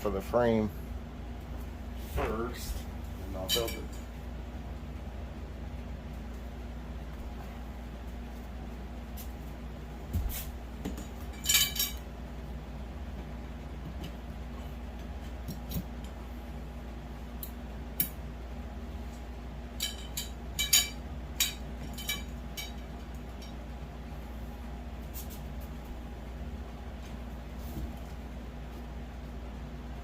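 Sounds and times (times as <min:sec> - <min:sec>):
steady low hum: 0:00.0 - 0:30.0
metal poles clinking: 0:03.2 - 0:04.1, 0:11.0 - 0:12.1, 0:19.7 - 0:23.6.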